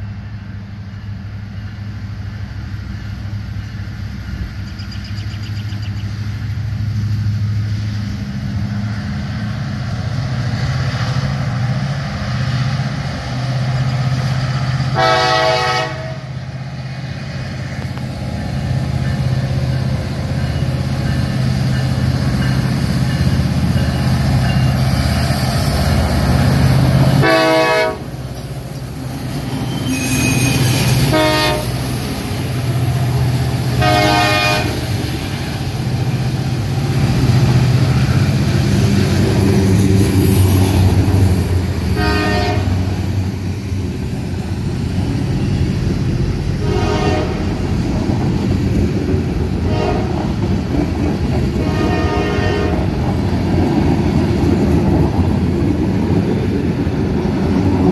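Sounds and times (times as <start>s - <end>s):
diesel locomotive engines humming: 0.0s - 57.9s
train horn blasts: 14.9s - 16.4s, 27.2s - 28.2s, 29.8s - 31.8s, 33.8s - 34.9s, 41.9s - 42.9s, 46.5s - 47.7s, 49.6s - 50.3s, 51.6s - 52.9s
freight cars rumbling and clattering: 17.0s - 57.9s.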